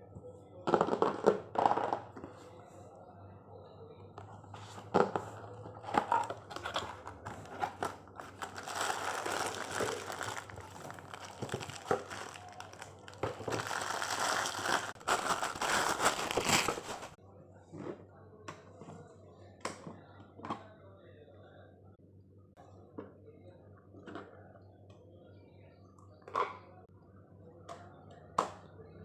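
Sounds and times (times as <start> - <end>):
packaging crinkling and rustling: 6.0 - 17.2.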